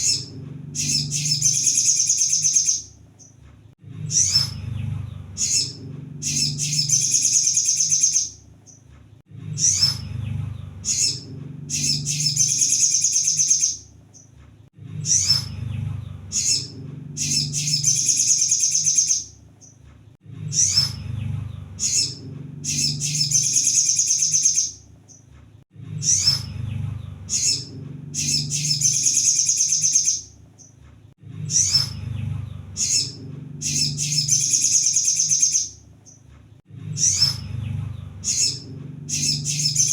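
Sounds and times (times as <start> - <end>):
bird singing high trill: 0.0 - 3.3, 5.4 - 8.8, 10.8 - 14.3, 16.3 - 19.4, 21.8 - 25.2, 27.3 - 30.7, 32.7 - 35.8, 38.2 - 39.9.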